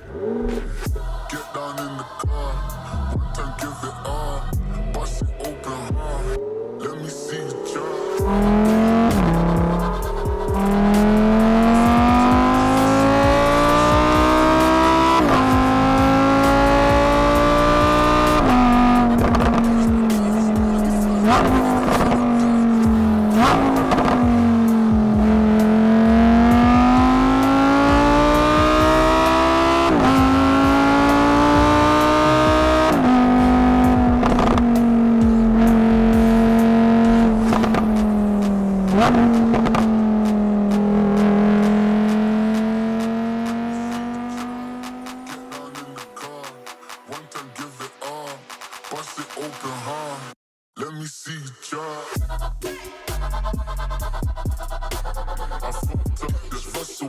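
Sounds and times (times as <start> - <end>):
sports car engine revving through gears: 0.0 - 1.0, 6.3 - 45.6.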